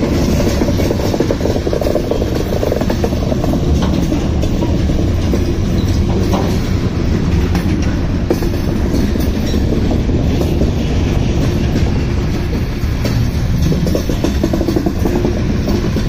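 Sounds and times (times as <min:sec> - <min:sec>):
freight train rumbling past: 0:00.0 - 0:16.0
wheels clacking over rail joints: 0:00.0 - 0:16.0.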